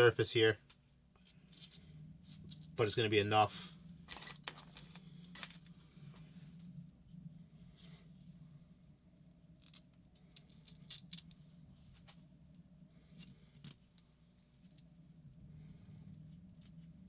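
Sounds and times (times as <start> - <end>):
low steady hum: 0.0 - 17.0
small metal tools clinking: 4.1 - 5.7.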